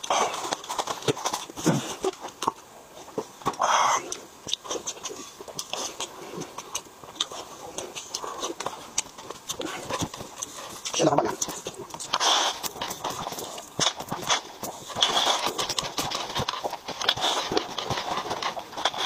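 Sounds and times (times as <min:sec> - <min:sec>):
wet chewing and lip-smacking: 0:00.0 - 0:19.0
mouth clicks: 0:03.4 - 0:19.0.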